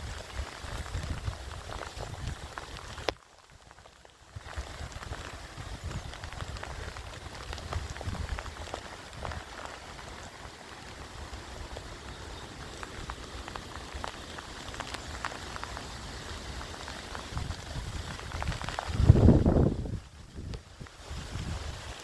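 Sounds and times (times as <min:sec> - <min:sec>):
rain hiss: 0:00.0 - 0:22.0
raindrops ticking: 0:00.0 - 0:22.0.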